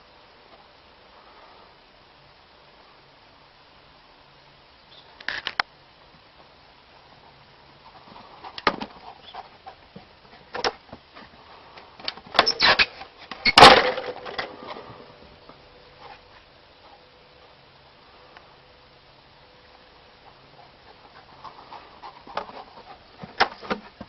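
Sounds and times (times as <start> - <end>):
faint steady ringing tone: 13.7 - 22.0.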